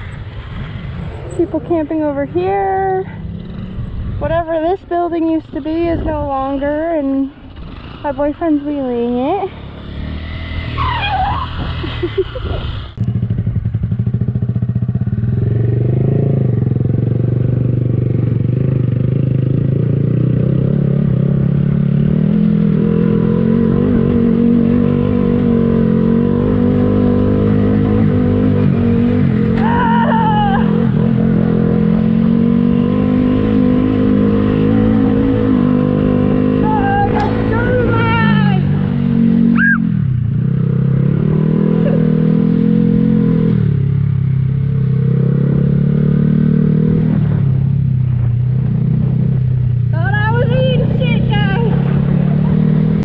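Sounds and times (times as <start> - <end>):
motorcycle engine running: 11.5 - 53.0.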